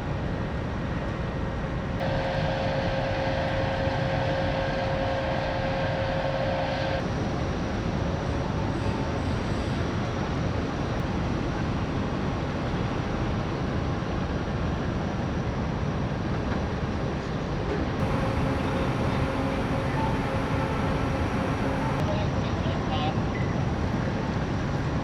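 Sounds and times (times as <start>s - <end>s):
faint steady hum: 2.0s - 7.0s, 18.0s - 22.0s
ferry rumbling under way: 18.0s - 22.0s.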